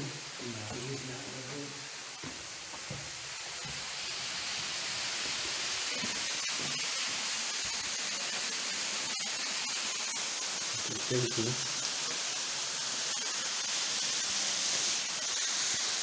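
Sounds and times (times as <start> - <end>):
waterfall rushing: 0.0 - 8.3.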